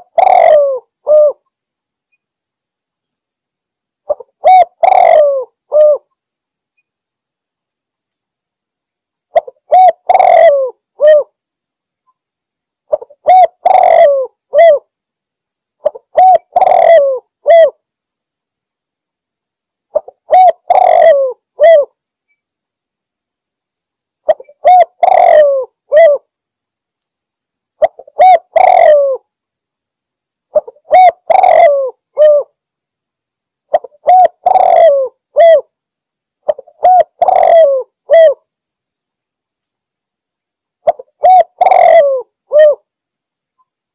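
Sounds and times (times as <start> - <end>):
dove cooing: 0.0 - 1.4, 4.1 - 6.1, 9.4 - 11.3, 12.9 - 14.8, 15.8 - 17.8, 19.9 - 21.9, 24.3 - 26.3, 27.8 - 29.2, 30.5 - 32.5, 33.7 - 35.7, 36.5 - 38.4, 40.8 - 42.8.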